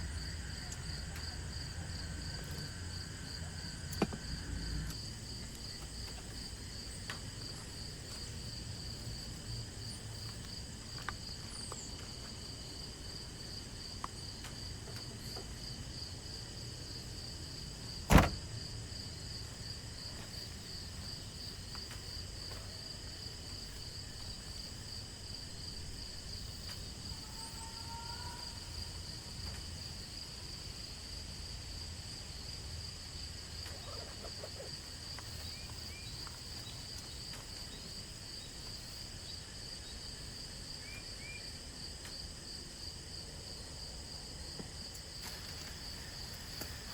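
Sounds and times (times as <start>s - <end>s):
insects chirring: 0.0s - 46.9s
sharp knock: 18.1s - 18.4s.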